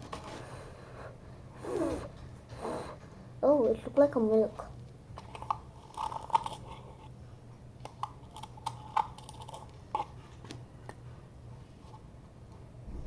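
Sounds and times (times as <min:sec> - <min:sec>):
small irregular clicks and crackles: 0:04.8 - 0:07.1, 0:07.8 - 0:11.0.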